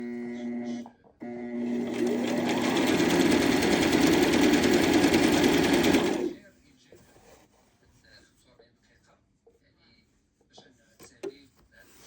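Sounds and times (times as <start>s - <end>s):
electric sewing machine stitching: 1.2s - 6.4s.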